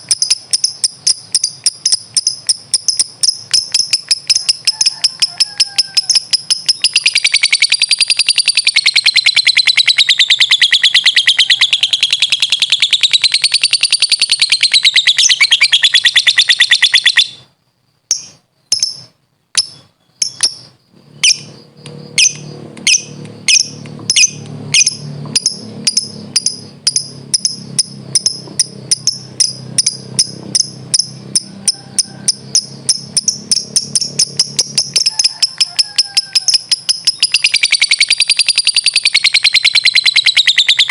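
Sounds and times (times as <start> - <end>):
bird chattering trill: 0.0 - 17.5, 18.1 - 40.9
bird sharp chirps: 0.0 - 17.5, 18.1 - 40.9
low hum: 20.2 - 35.3.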